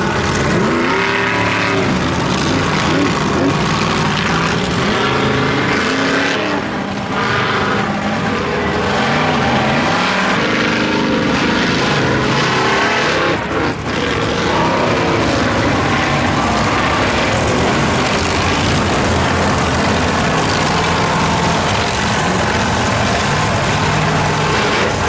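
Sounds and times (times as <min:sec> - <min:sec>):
monster truck engine revving: 0:00.0 - 0:25.0.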